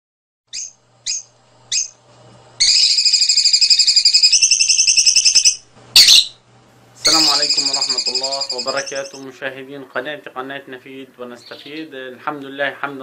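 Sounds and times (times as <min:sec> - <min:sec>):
songbird rapid trill: 0:00.5 - 0:02.0, 0:02.6 - 0:06.4, 0:07.0 - 0:09.2
songbird chirps: 0:02.6 - 0:06.4, 0:07.0 - 0:10.2, 0:11.2 - 0:12.1.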